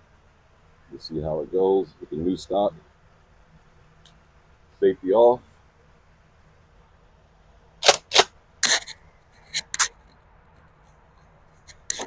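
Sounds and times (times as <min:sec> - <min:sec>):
shotgun firing: 0:07.8 - 0:08.3
shotgun being racked: 0:07.8 - 0:08.9.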